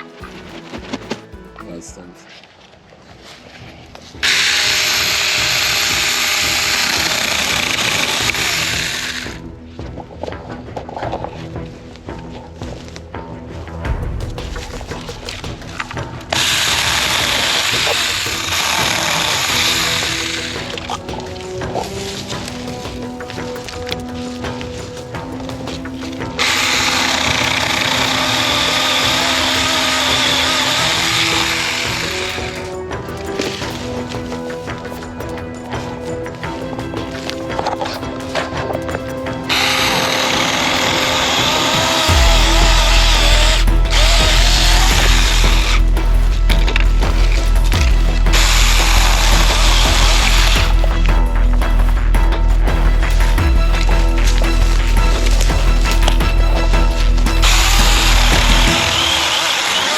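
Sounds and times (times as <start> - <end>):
chainsaw cutting wood: 4.2 - 9.2, 57.4 - 59.9.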